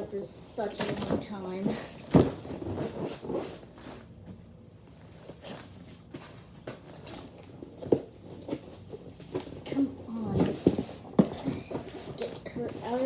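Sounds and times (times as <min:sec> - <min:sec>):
packaging taps and rustles: 0:05.0 - 0:13.0.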